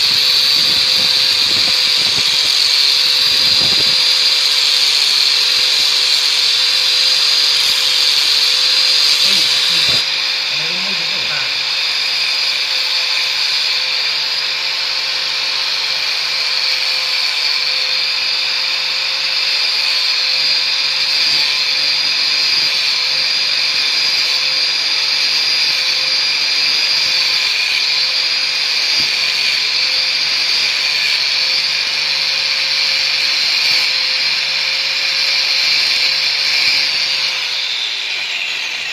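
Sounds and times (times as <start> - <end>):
angle grinder grinding steel: 0.0 - 38.9.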